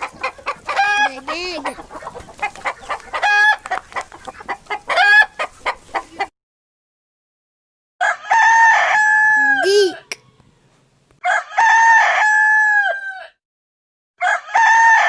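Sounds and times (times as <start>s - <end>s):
chickens clucking: 0.0s - 6.3s
rooster crowing: 8.0s - 13.4s, 14.2s - 15.0s.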